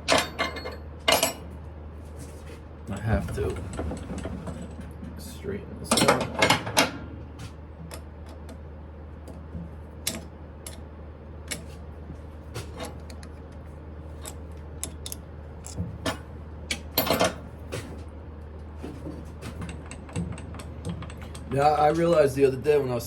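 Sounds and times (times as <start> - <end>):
low hum: 2.9 - 6.0
metal clicks and taps: 12.8 - 13.4, 14.2 - 15.9.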